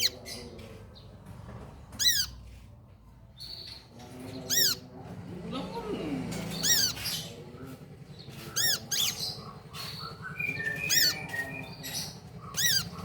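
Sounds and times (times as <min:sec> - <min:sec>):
sunbird calling: 0:08.4 - 0:13.0.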